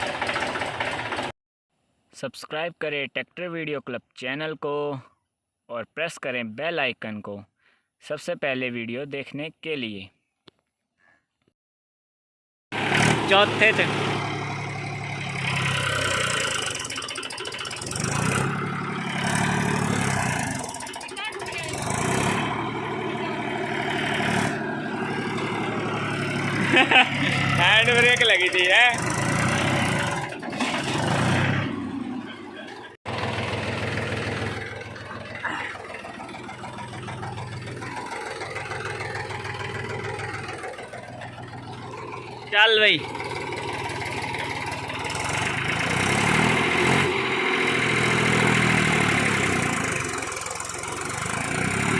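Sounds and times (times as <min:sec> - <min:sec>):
tractor diesel engine under load: 0:00.0 - 0:01.4, 0:12.7 - 0:51.9.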